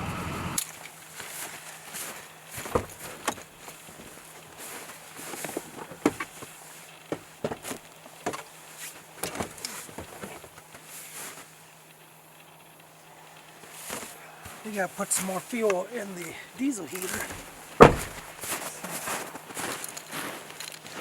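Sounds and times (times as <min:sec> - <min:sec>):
faint steady hum: 0:00.0 - 0:21.0
clicks knocks and rustling of gear: 0:02.6 - 0:10.9, 0:19.6 - 0:21.0.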